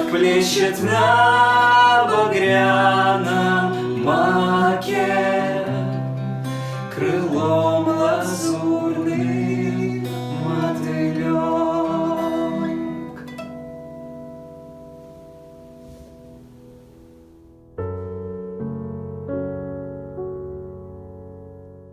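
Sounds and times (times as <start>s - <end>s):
person singing: 0.0s - 13.4s
acoustic guitar: 0.0s - 21.9s.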